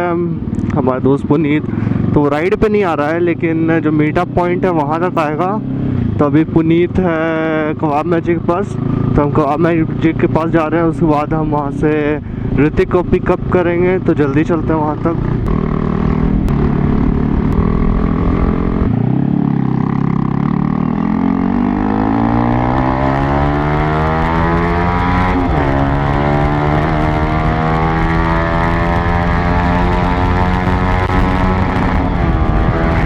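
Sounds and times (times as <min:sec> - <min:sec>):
motorcycle engine accelerating: 0:00.0 - 0:33.0
wind rush: 0:15.2 - 0:20.0, 0:29.9 - 0:33.0.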